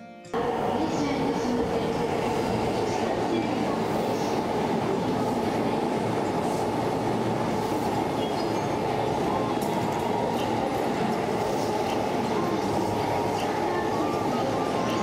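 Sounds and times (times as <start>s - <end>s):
train wheels rumbling on rail: 0.4s - 15.0s.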